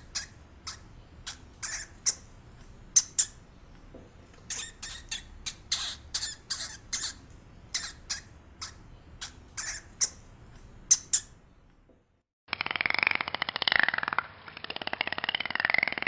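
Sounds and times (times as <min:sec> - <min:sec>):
small animal squeaking: 0:00.0 - 0:02.3, 0:02.9 - 0:03.4, 0:04.4 - 0:10.3, 0:10.9 - 0:11.4.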